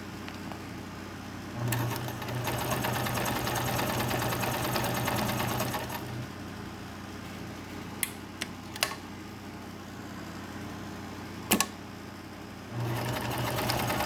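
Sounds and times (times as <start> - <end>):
sewing machine stitching: 1.6 - 6.2, 12.8 - 14.0.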